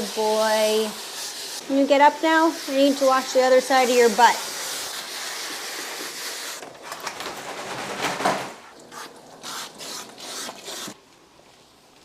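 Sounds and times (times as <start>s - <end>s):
water spraying from sprayer: 0.0s - 6.6s.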